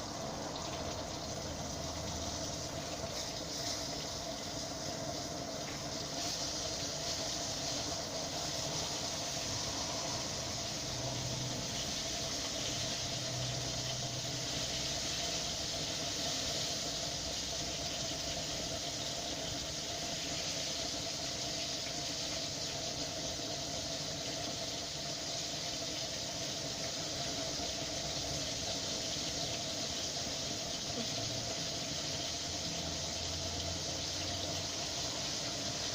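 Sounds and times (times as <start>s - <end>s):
faint steady tone: 0.0s - 35.9s
fish sizzling in hot oil: 0.0s - 35.9s.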